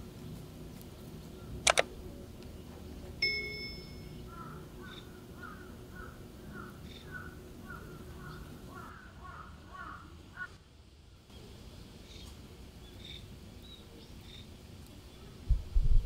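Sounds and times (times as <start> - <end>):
birds calling: 0.0 - 10.6, 11.3 - 15.5
faint high chirps: 3.2 - 5.2.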